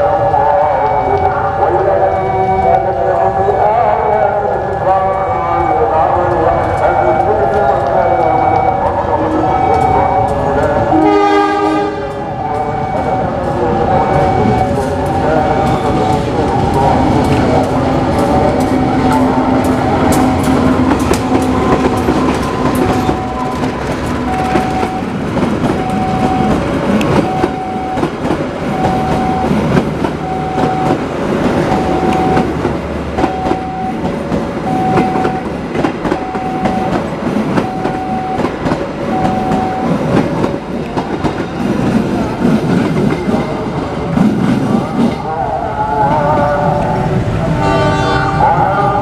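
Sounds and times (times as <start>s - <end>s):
diesel engine drone: 3.0s - 38.3s
train wheels clacking over rail joints: 14.8s - 45.2s
repeating beep: 21.4s - 25.1s, 25.8s - 26.6s, 27.2s - 28.1s, 28.7s - 29.6s, 30.2s - 31.0s, 31.7s - 32.5s, 33.2s - 34.0s, 34.7s - 35.5s, 36.1s - 37.0s, 37.6s - 38.5s, 39.1s - 40.0s.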